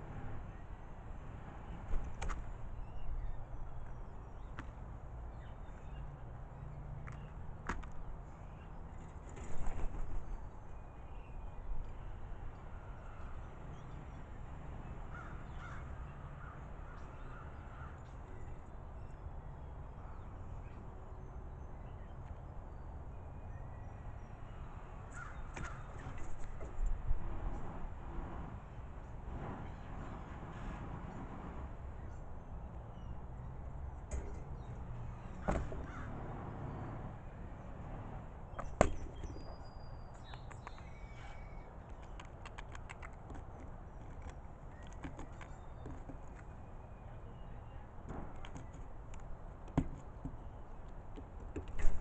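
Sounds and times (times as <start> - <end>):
small birds chirping: 1.7 - 26.7, 38.4 - 49.4
crows cawing: 15.1 - 16.6, 25.1 - 25.9, 35.4 - 36.2
faint high bird chirps: 38.5 - 41.8.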